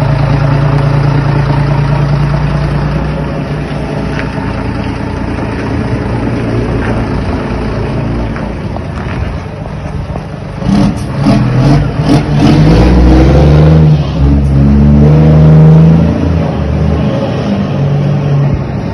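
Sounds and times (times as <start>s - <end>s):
truck diesel engine accelerating: 0.0s - 18.9s.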